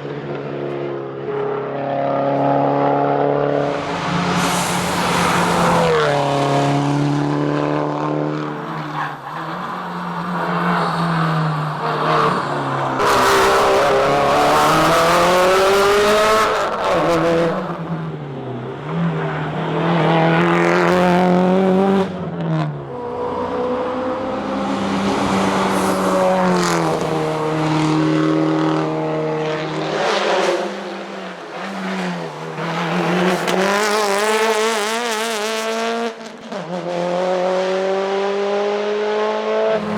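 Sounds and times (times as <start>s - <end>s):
rally car engine revving: 0.0s - 39.9s
road and tyre noise: 0.0s - 39.9s.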